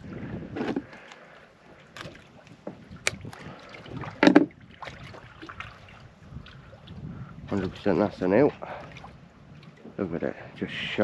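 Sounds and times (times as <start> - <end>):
fishing tackle clicks and knocks: 4.2 - 4.5.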